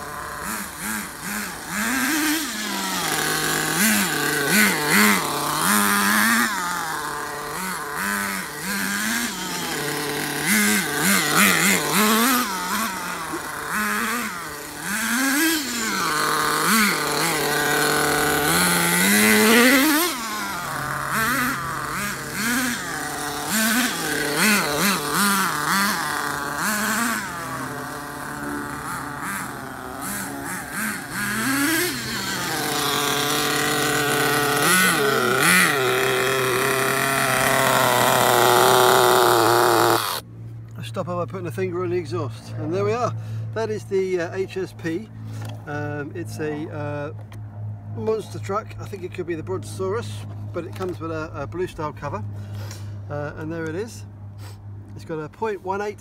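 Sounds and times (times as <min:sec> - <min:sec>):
model nitro engine revving: 0:00.0 - 0:40.2.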